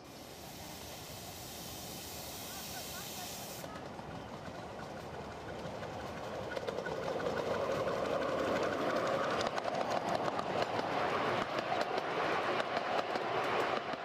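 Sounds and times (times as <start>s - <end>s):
hiss: 0.0s - 3.8s
miniature train approaching: 0.0s - 14.0s
wheels clicking over track: 3.4s - 14.0s.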